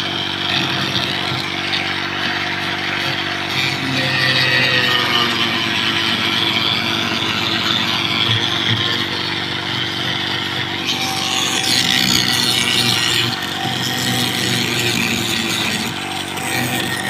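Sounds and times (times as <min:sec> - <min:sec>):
harsh rasping noise: 0:00.0 - 0:17.0
power tool motor hum: 0:00.0 - 0:17.0.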